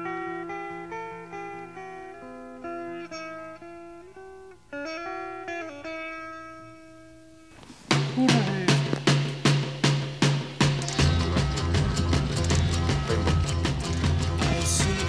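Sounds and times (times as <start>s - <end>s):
guitar picking slow melody: 0.0s - 7.6s, 10.6s - 15.0s.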